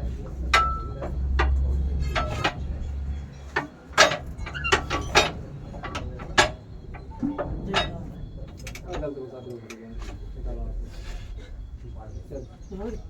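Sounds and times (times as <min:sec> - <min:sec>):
metallic clinks and knocks: 0:00.5 - 0:10.3.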